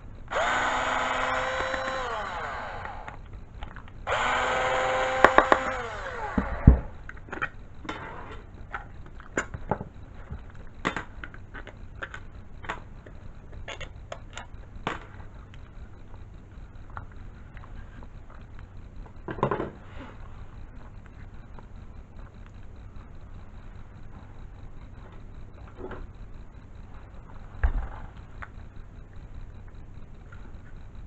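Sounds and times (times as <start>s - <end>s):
electric hoist motor winding: 0.0s - 7.4s
sharp clicks: 0.3s - 4.3s.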